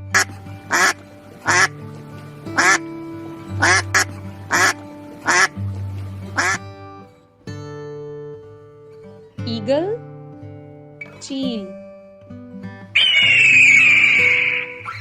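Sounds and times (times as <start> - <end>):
duck quacking: 0.2 - 1.7, 2.6 - 2.8, 3.6 - 5.6, 6.4 - 6.6, 13.0 - 15.0.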